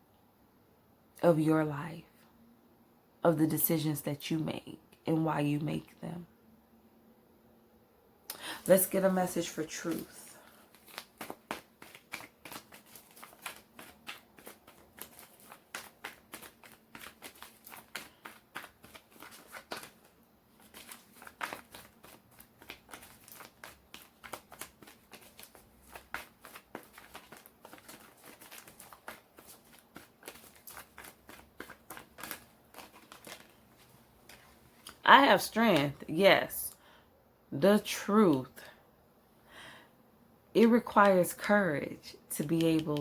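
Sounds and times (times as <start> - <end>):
cards being shuffled: 8.8 - 36.1.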